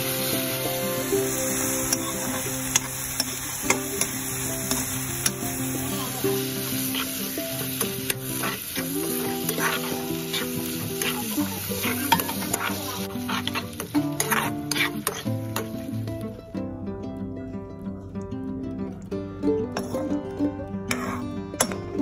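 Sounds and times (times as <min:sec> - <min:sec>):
chicken sizzling in hot oil: 0:00.0 - 0:16.0
background music notes: 0:00.0 - 0:22.0
spatula scraping metal pan: 0:06.8 - 0:15.7, 0:20.9 - 0:21.8.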